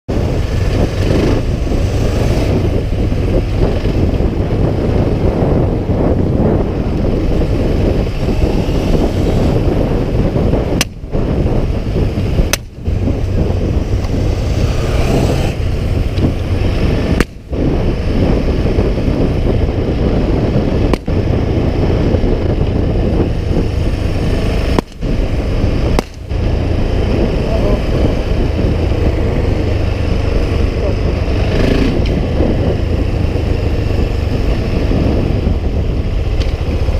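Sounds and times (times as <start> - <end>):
motorcycle engine at speed: 0.1 - 36.9
wind on microphone: 0.1 - 36.9
exhaust pops: 15.2 - 17.8, 24.6 - 26.6.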